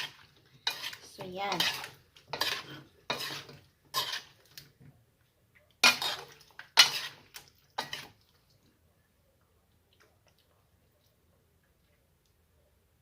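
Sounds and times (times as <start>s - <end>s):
metal utensil scraping a bowl: 0.0s - 4.5s, 5.8s - 8.2s.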